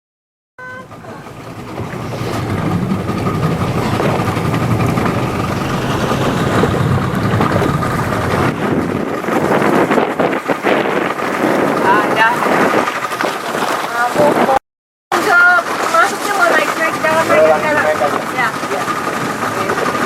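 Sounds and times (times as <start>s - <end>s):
speedboat running: 0.6s - 20.0s
wind on microphone: 1.0s - 14.6s.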